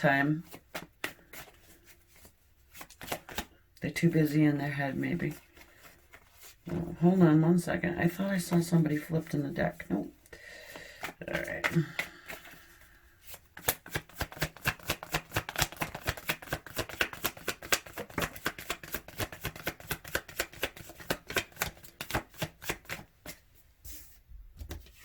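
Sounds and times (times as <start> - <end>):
cards being shuffled: 0.4 - 3.6, 10.9 - 25.0.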